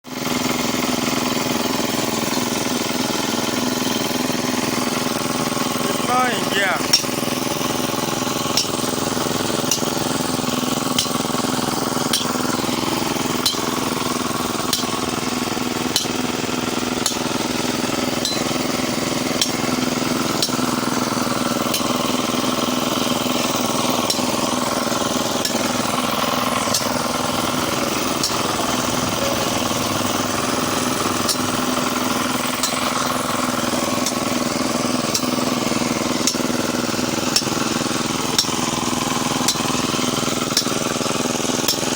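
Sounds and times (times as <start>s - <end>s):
small engine running: 0.0s - 41.9s.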